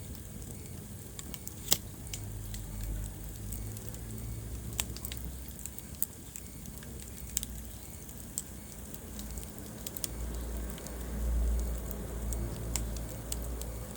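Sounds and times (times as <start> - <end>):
low rumble of flames: 0.0 - 13.9
wood fire crackling: 0.0 - 13.9.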